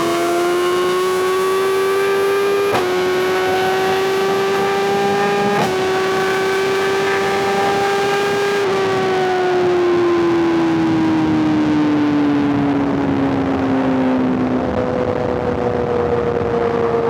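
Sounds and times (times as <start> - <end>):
motorcycle engine accelerating: 0.0 - 11.6.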